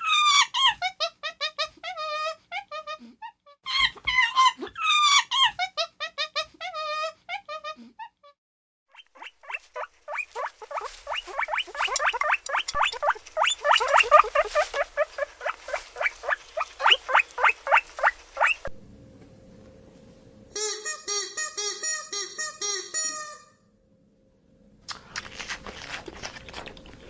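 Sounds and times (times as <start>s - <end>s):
small animal chirping: 8.9s - 18.7s.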